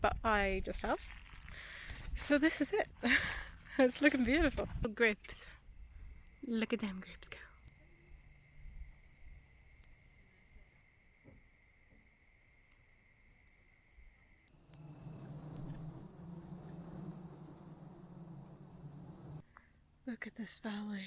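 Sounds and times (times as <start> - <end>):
insects trilling: 14.3 - 19.4.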